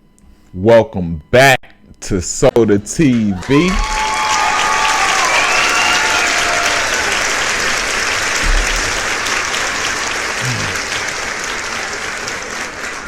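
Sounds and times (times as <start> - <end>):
crowd applause: 3.1 - 13.0.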